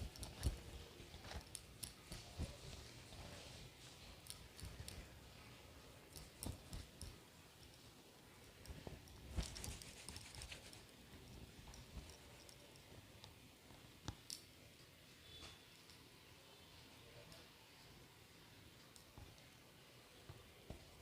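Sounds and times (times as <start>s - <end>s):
wet hair being shaken: 9.2s - 10.9s.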